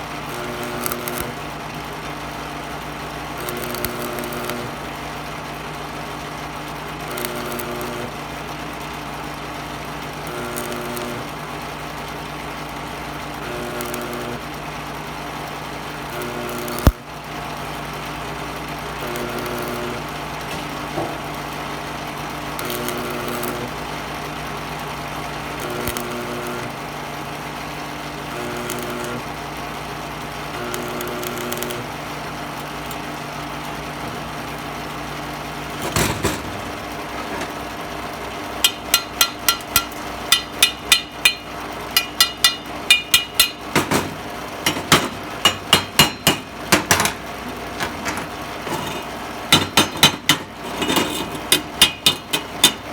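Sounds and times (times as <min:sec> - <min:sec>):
machine hum: 0:27.7 - 0:52.9
hammer strikes on metal: 0:38.6 - 0:47.2, 0:47.8 - 0:52.9.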